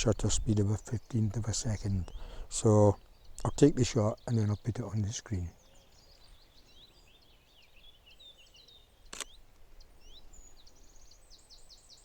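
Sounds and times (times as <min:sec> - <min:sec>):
birds chirping: 0:00.0 - 0:12.0
camera shutter click: 0:09.1 - 0:09.4.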